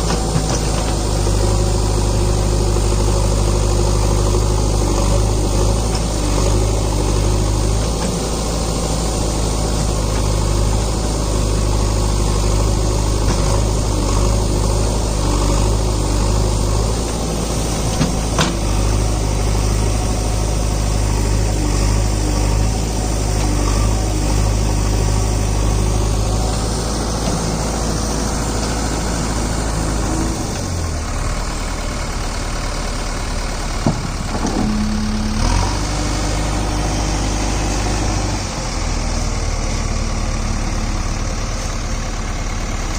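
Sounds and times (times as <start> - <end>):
backhoe diesel engine running: 0.0 - 42.9.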